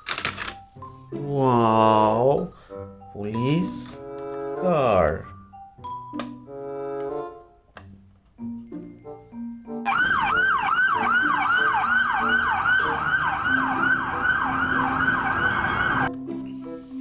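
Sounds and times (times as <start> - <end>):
light background music: 0.0 - 17.0
police siren yelping: 9.9 - 16.1.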